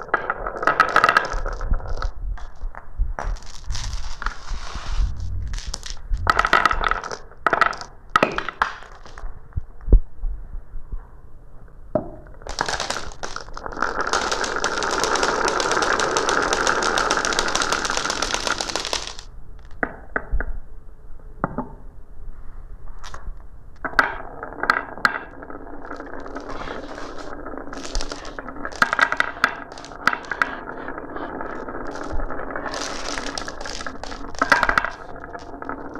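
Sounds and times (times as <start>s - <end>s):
marbles rattling down a marble run: 0.0s - 4.5s, 5.4s - 9.2s, 12.4s - 19.8s, 23.8s - 35.9s.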